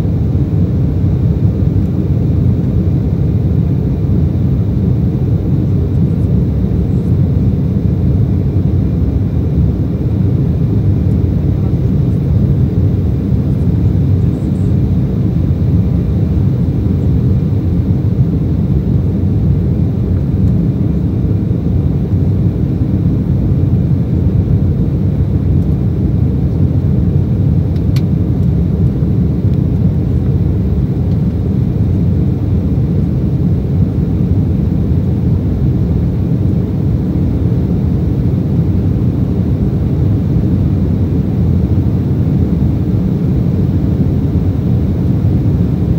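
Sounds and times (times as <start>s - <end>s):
jet cabin rumble: 0.0s - 45.9s.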